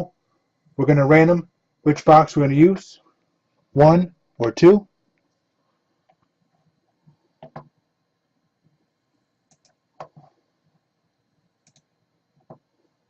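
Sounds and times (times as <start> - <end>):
mouse and keyboard clicks: 7.4 - 7.7, 9.5 - 10.3, 11.6 - 12.6.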